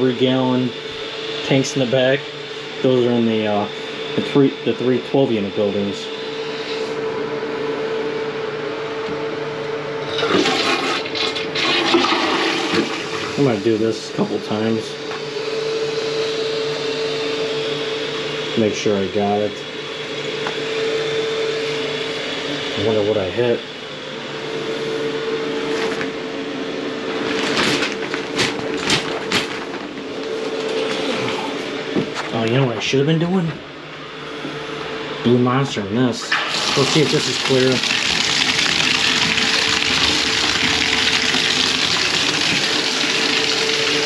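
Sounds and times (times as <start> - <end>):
fill valve whine: 0.0 - 27.4, 30.2 - 44.0
toilet flushing: 10.0 - 13.8, 36.2 - 44.0.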